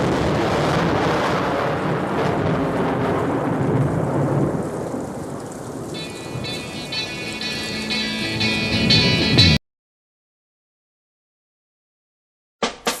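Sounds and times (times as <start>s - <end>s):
rolling thunder: 0.0s - 9.6s
heavy rain hiss: 3.6s - 9.6s
musical notes: 6.0s - 9.6s.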